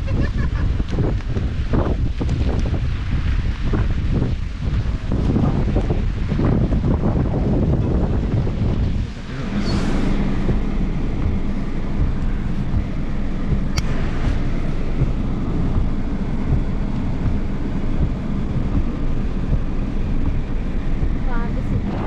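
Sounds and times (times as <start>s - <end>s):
wind buffeting microphone: 0.0s - 22.0s
sharp click: 13.7s - 14.0s.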